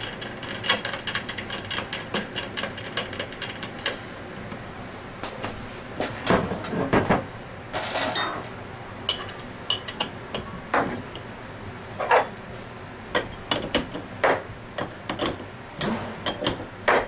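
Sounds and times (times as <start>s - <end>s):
metal parts clinking and knocking: 7.8s - 8.5s.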